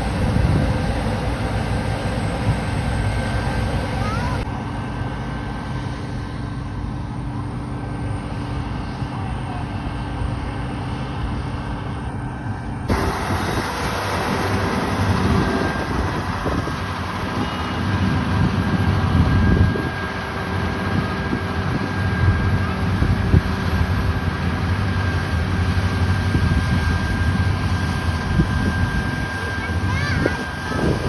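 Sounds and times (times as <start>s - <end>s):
harvest machinery engine droning: 0.0s - 31.0s.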